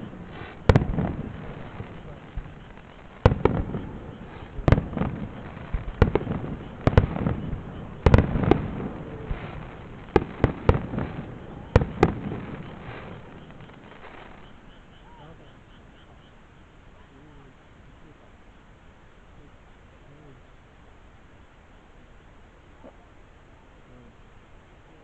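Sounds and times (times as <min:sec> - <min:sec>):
fireworks crackling: 0:00.0 - 0:16.0
fireworks booming: 0:00.0 - 0:16.1.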